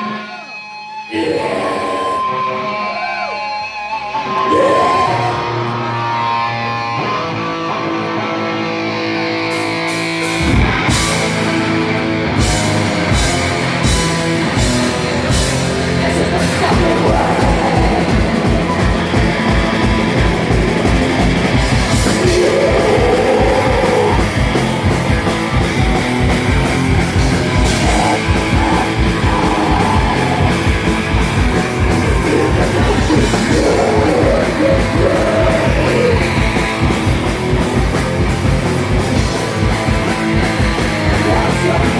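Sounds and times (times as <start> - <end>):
electric guitar: 0.0 - 41.9
live rock band playing: 2.3 - 41.9
drums fast beat: 10.2 - 41.9.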